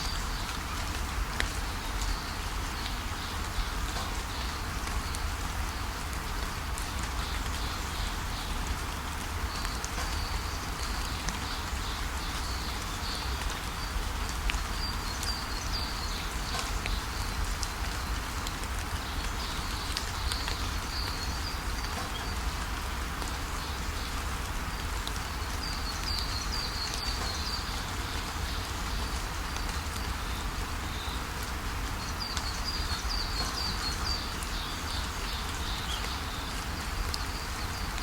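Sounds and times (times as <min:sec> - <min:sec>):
steady noisy hiss: 0:00.0 - 0:38.0
small birds chirping: 0:18.9 - 0:22.6, 0:23.6 - 0:31.4, 0:32.0 - 0:38.0.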